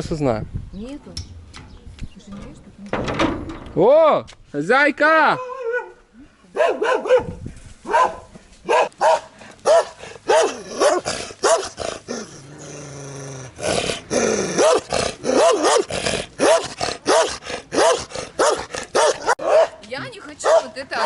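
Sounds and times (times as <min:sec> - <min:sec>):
dog barking: 0:05.4 - 0:06.0, 0:06.6 - 0:11.8, 0:14.6 - 0:21.0.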